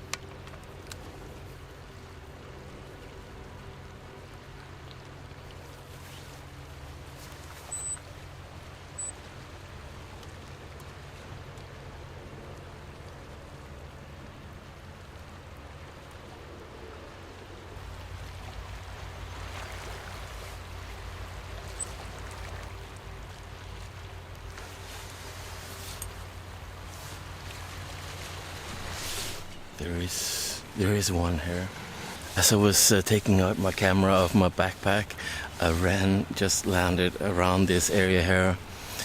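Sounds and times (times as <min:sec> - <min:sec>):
sea water splashing on rocks: 0:17.8 - 0:25.4.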